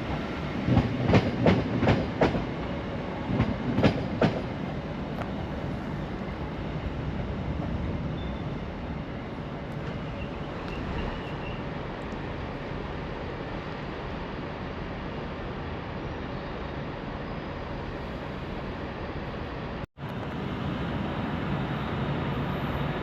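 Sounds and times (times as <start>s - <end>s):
train rumble: 0.0s - 23.0s
train wheels clacking on rail joints: 0.7s - 2.5s, 3.3s - 4.5s.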